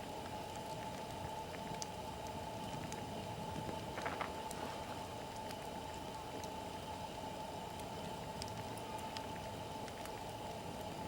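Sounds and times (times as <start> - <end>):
campfire crackling: 0.0 - 11.0
steady hiss: 2.0 - 9.7.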